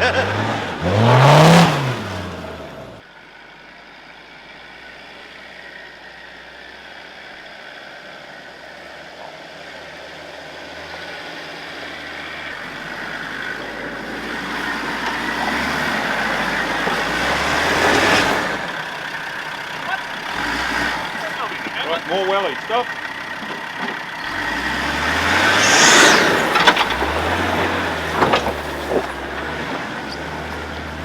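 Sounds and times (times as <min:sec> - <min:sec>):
engine running at low revs: 0:24.2 - 0:31.0.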